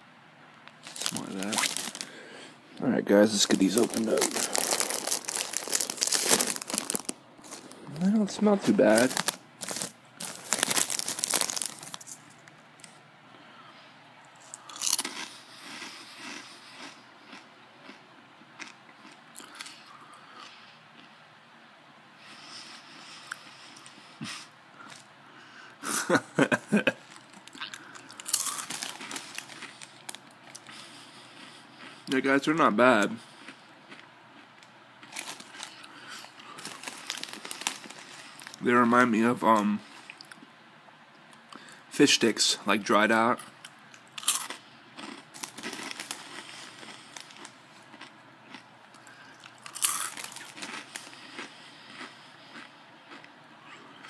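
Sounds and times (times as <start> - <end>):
chewing crunchy snack: 0.7 - 2.2, 3.3 - 12.3, 14.4 - 21.2, 26.8 - 32.3, 33.0 - 38.6, 43.6 - 54.0.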